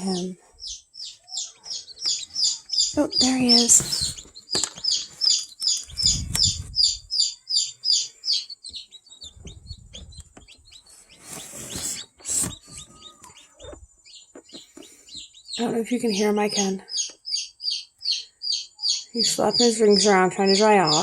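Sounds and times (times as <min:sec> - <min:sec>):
chick peeping: 0:00.0 - 0:21.0
rustling: 0:02.1 - 0:07.1, 0:09.2 - 0:13.8.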